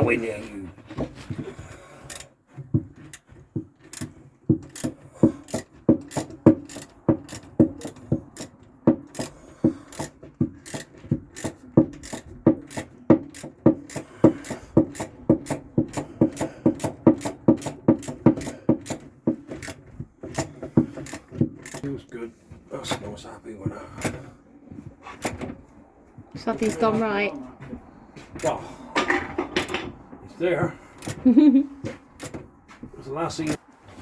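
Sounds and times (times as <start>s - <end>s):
hand tool rasping strokes: 1.3s - 22.0s.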